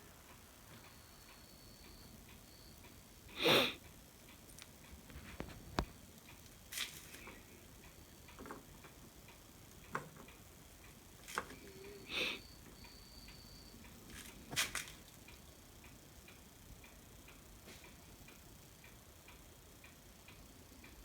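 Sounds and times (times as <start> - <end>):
faint high whine: 0.0 - 4.1, 10.6 - 17.2
faint clicks and taps: 4.3 - 11.8.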